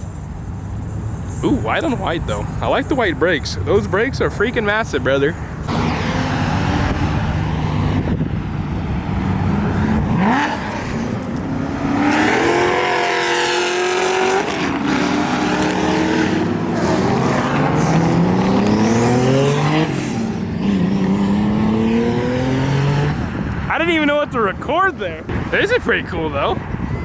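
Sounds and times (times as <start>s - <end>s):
car accelerating hard: 5.7s - 23.5s.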